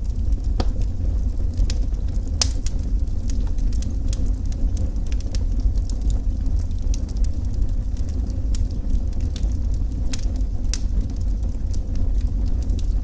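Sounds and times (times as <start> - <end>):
deep rumble: 0.0 - 13.0
wood fire crackling: 0.0 - 13.0.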